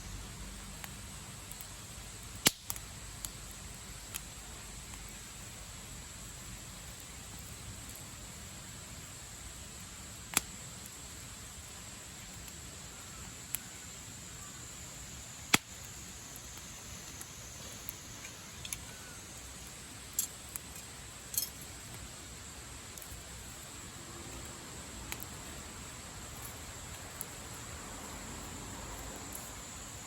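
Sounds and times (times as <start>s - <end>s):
campfire burning: 0.0s - 30.0s
wood popping and crackling: 0.7s - 5.2s, 15.4s - 27.7s.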